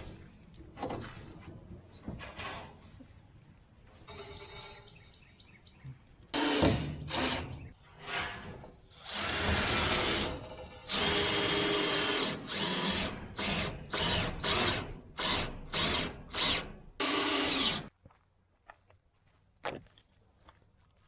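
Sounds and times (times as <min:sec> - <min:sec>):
power drill running: 0:06.4 - 0:07.5, 0:09.0 - 0:17.9.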